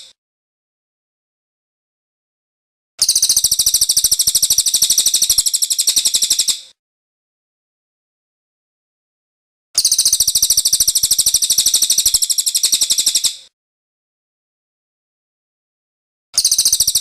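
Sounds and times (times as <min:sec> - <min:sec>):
bird singing fast high trill: 0:16.4 - 0:17.0.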